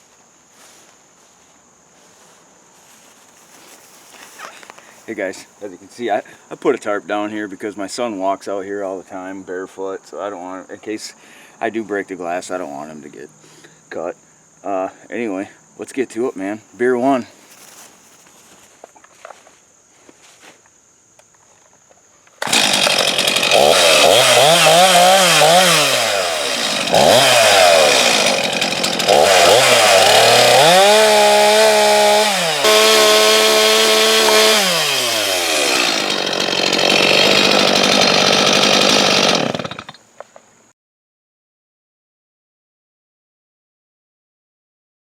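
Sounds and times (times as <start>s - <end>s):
chainsaw revving: 22.4s - 40.0s.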